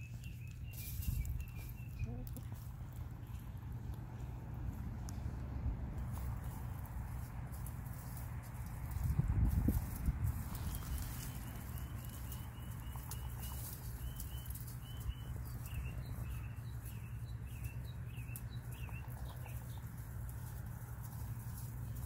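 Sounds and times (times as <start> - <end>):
small bird chirping: 0.0 - 3.9, 10.3 - 20.6
steady low hum: 0.0 - 22.0.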